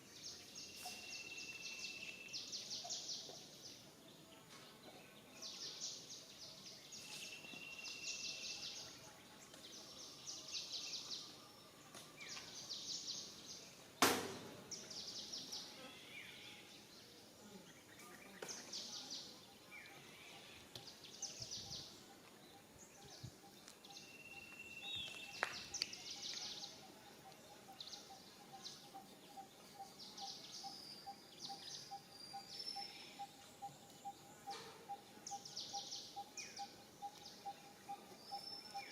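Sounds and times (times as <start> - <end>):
birds chirping: 14.6 - 38.9
faint steady pulsing call: 17.8 - 38.9.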